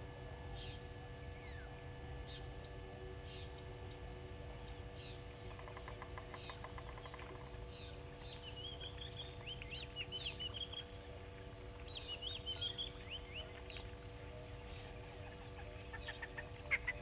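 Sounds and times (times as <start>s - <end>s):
high twittering bird chirps: 5.0s - 11.0s, 11.8s - 13.9s
bird ticking calls: 5.4s - 11.0s, 15.2s - 17.0s.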